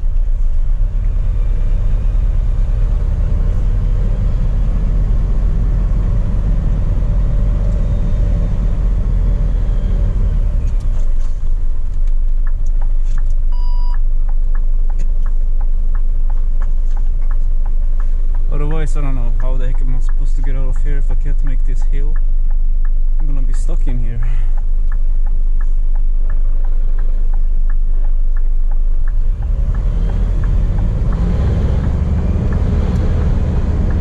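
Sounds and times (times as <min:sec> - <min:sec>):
diesel truck engine droning: 0:00.0 - 0:34.0
brief beep: 0:13.5 - 0:14.0.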